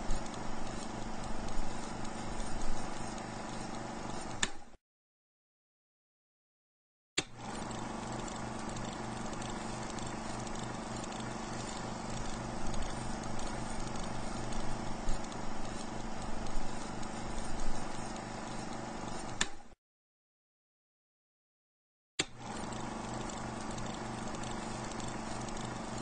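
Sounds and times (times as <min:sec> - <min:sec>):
engine running with pulsing hum: 0:07.4 - 0:18.6, 0:22.5 - 0:26.0.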